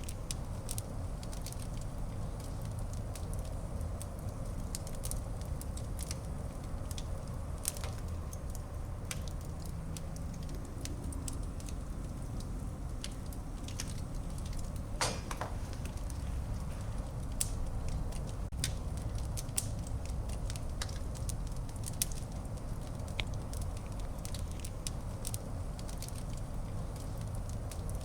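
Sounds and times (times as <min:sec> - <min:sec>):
low fire rumble: 0:00.0 - 0:28.0
sharp pops of fire: 0:00.0 - 0:28.0
wood fire crackling: 0:00.0 - 0:28.0.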